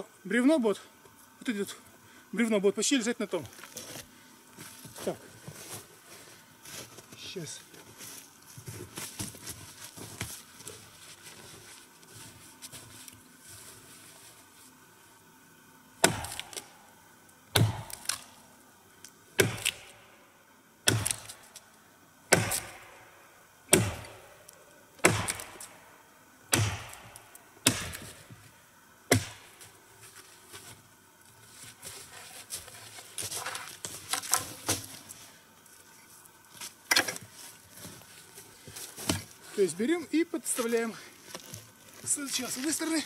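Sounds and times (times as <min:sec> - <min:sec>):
axe chopping into wood: 0:16.0 - 0:16.7, 0:17.5 - 0:18.2, 0:19.4 - 0:20.0, 0:20.8 - 0:21.4, 0:22.3 - 0:23.0, 0:23.7 - 0:24.3, 0:25.0 - 0:25.8, 0:26.5 - 0:28.2, 0:29.1 - 0:29.5.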